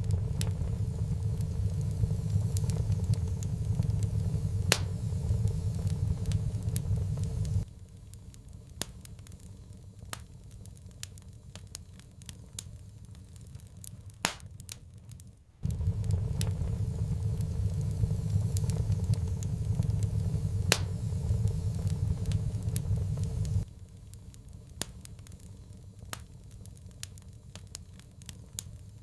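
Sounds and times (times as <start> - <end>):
sharp pops: 0.0 - 7.7, 15.6 - 23.7
steady low rumble: 0.0 - 7.7, 15.6 - 24.5
wood fire crackling: 0.0 - 29.0.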